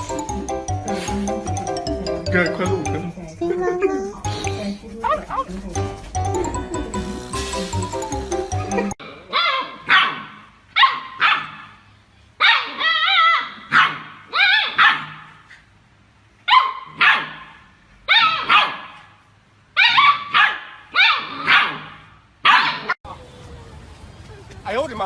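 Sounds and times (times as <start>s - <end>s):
dog barking: 9.3s - 11.8s, 12.4s - 15.4s, 16.5s - 19.1s, 19.8s - 23.0s.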